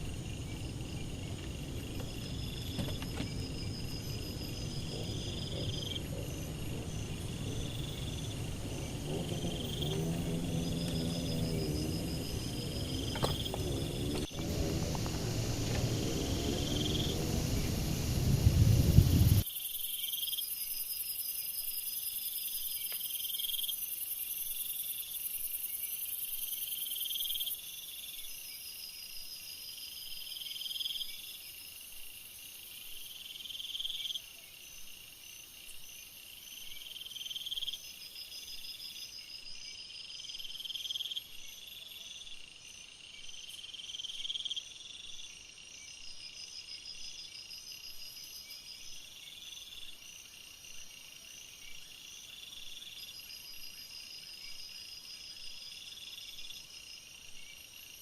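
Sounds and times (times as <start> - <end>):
loud rushing noise: 0.0 - 19.4
insect trilling: 0.0 - 20.6
insect short high calls: 0.0 - 21.8.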